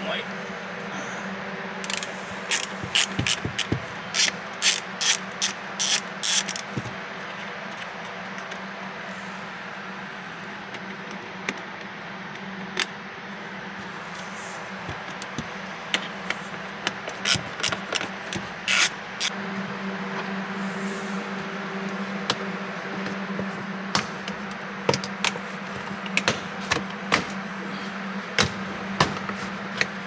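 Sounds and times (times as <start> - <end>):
steady low hum: 0.0 - 30.0
socket wrench clicking: 1.8 - 6.8, 16.0 - 19.3.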